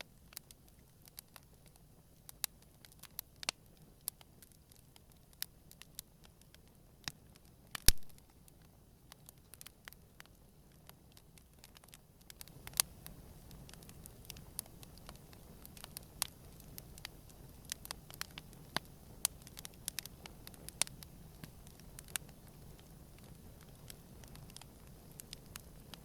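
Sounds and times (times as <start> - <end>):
campfire crackling and snapping: 0.0 - 26.0
loud fire pop: 7.8 - 8.2.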